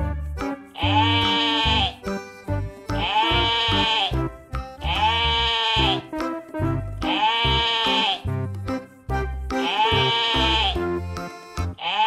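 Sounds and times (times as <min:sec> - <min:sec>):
background music with low beat: 0:00.0 - 0:11.8
sheep bleating: 0:00.8 - 0:02.1, 0:02.9 - 0:04.2, 0:04.9 - 0:06.1, 0:07.1 - 0:08.3, 0:09.6 - 0:10.8, 0:11.8 - 0:12.0.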